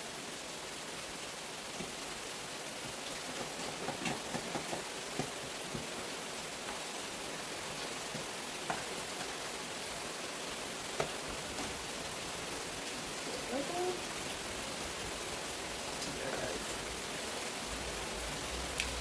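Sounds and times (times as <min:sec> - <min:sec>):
heavy rain hissing: 0:00.0 - 0:19.0.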